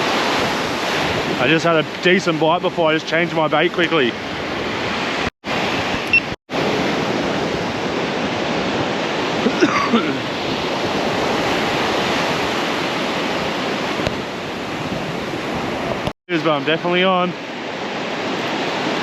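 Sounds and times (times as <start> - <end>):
ocean surf washing onto beach: 0.0 - 19.0.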